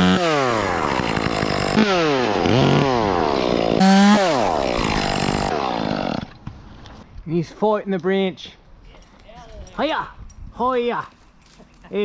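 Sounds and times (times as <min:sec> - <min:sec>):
chainsaw revving: 0:00.0 - 0:06.4.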